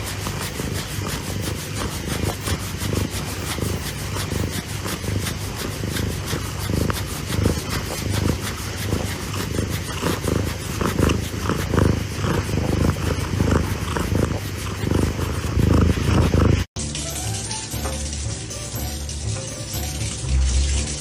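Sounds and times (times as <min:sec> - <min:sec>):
cat purring: 0:00.0 - 0:16.7.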